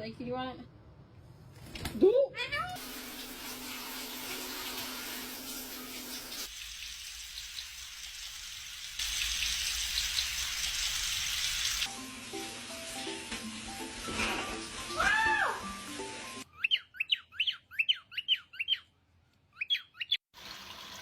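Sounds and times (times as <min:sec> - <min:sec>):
running water hissing: 0:02.8 - 0:16.4, 0:20.4 - 0:21.0
background music: 0:11.9 - 0:16.4.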